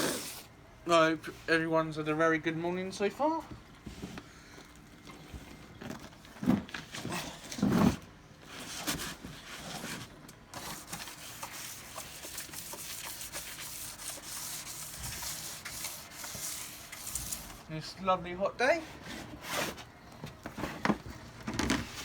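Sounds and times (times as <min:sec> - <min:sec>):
sandpaper scraping plastic: 0:07.8 - 0:17.7.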